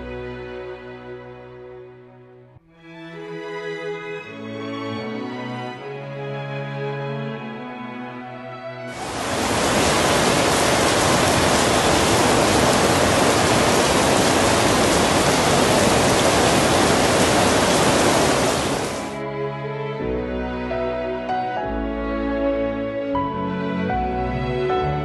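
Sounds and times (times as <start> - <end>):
heavy rain hissing: 8.9 - 19.2.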